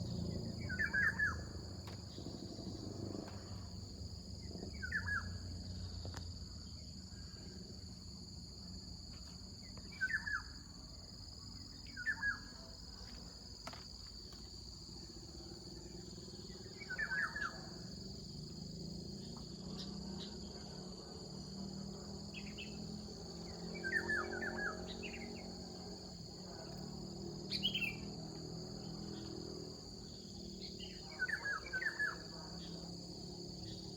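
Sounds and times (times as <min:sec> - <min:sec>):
bird chirping: 0:00.0 - 0:02.4, 0:27.5 - 0:28.1
insects droning: 0:00.0 - 0:33.9.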